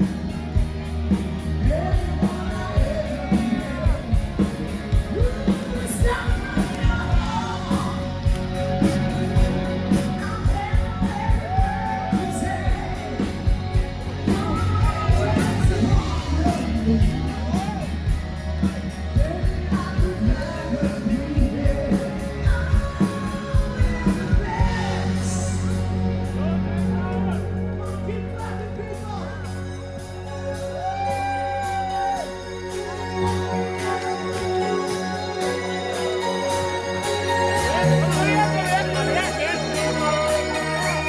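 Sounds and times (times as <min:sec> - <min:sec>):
live band music: 0:00.0 - 0:41.0
person singing: 0:01.4 - 0:41.0
crowd shouting along: 0:30.4 - 0:32.8.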